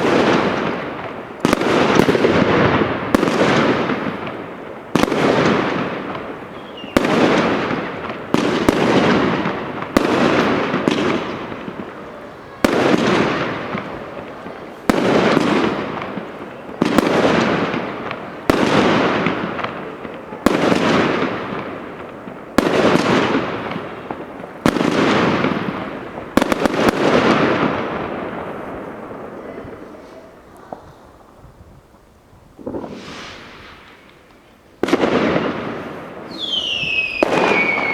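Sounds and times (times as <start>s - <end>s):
fireworks bangs with crackle: 0.0s - 37.9s.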